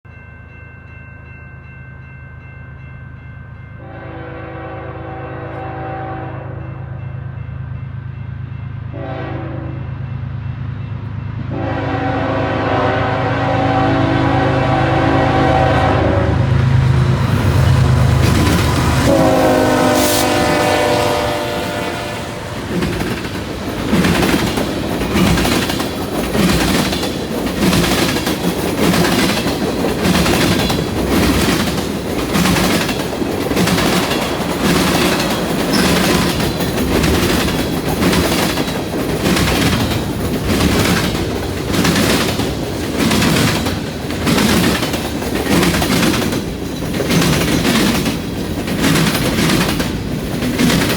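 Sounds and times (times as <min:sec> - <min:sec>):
locomotive horn blowing: 0:03.8 - 0:07.0, 0:08.9 - 0:10.0, 0:11.5 - 0:16.6, 0:18.9 - 0:22.7
train wheels clacking on rail joints: 0:16.5 - 0:50.9.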